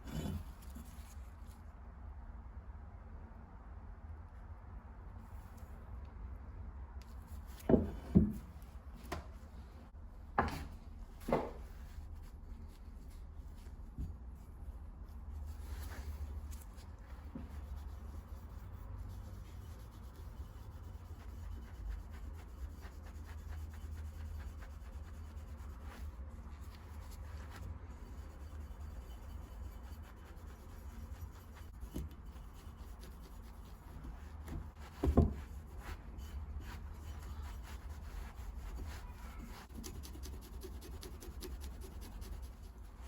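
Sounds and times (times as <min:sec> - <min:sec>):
rubbing and scratching on metal: 0:00.0 - 0:01.6, 0:11.5 - 0:43.0.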